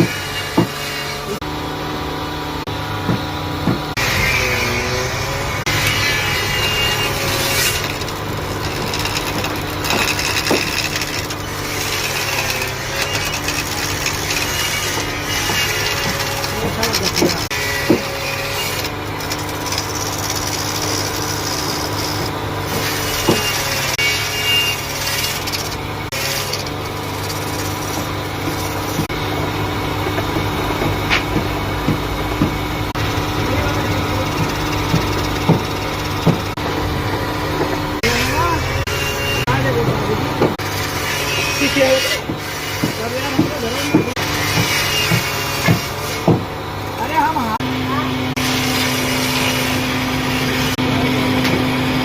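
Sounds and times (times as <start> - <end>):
tool rasping wood: 0.0 - 1.4, 3.1 - 29.2, 30.1 - 36.6, 37.2 - 47.6, 48.3 - 50.8
machine motor humming: 0.2 - 41.6.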